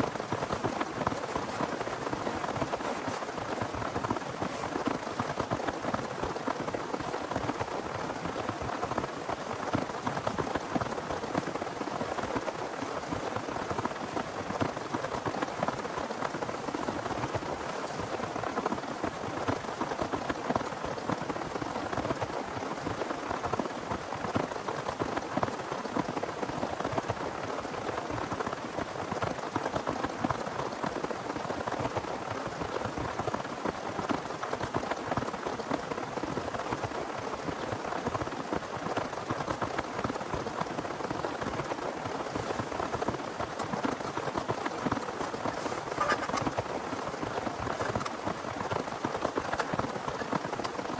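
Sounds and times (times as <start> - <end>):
heavy rain falling: 37.0 - 50.9.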